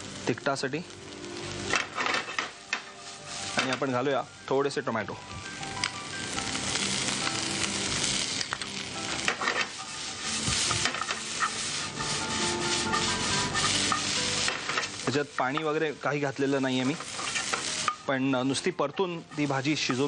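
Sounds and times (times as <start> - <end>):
vegetables sizzling in a pan: 0.0 - 20.0
utensil scraping and tapping pan: 10.4 - 15.7.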